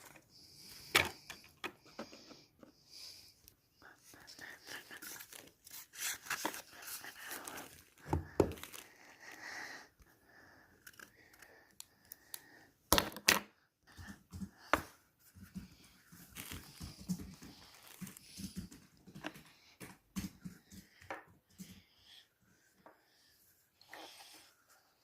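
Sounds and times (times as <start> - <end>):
paper and cardboard rustling: 4.7 - 9.0.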